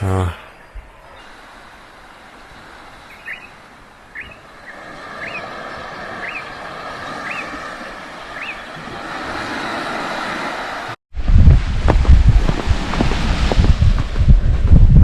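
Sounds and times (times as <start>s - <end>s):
steady outdoor hiss: 0.0s - 10.9s
bird rising chirp: 3.1s - 5.5s, 8.3s - 8.7s.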